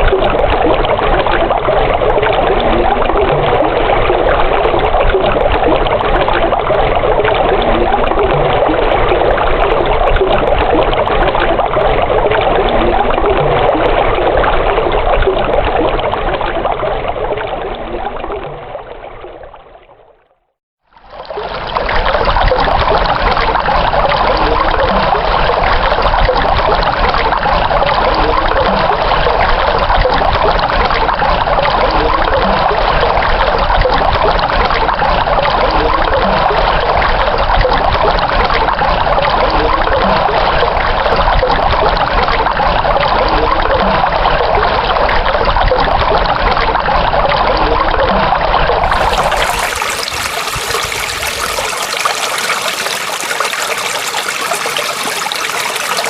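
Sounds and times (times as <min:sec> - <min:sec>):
running water trickling: 0:48.8 - 0:56.0.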